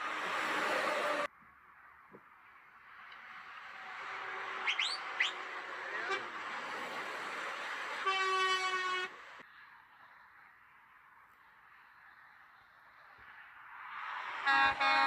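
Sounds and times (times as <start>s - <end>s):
truck passing: 0.0s - 1.3s, 2.8s - 15.0s
short rising whistles: 4.6s - 5.4s
truck air horn blast: 5.9s - 6.4s, 7.9s - 9.3s, 14.4s - 15.0s.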